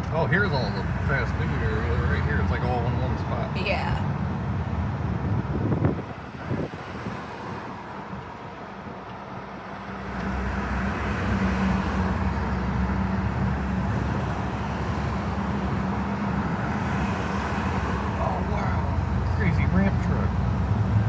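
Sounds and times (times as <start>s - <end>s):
motor vehicle engine rumble: 0.0s - 7.0s.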